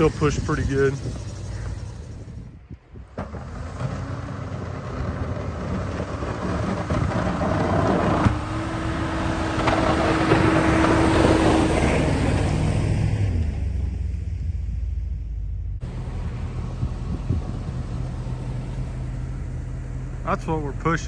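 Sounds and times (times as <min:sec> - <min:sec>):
noisy rush: 0:00.0 - 0:02.9
plow truck running: 0:00.0 - 0:21.0.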